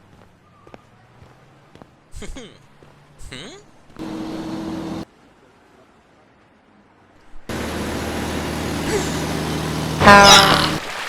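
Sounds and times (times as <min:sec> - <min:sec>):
speeding truck engine: 0:04.0 - 0:05.1, 0:07.5 - 0:11.0
short hum: 0:07.5 - 0:10.8.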